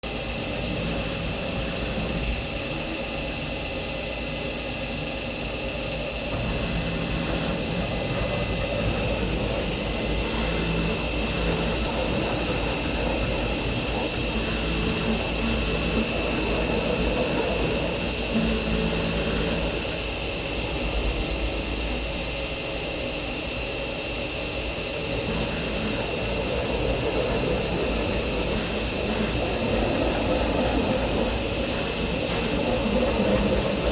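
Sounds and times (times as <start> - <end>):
milling machine spindle whine: 0.0 - 33.9
metal cutting noise: 6.3 - 20.8, 24.9 - 33.9.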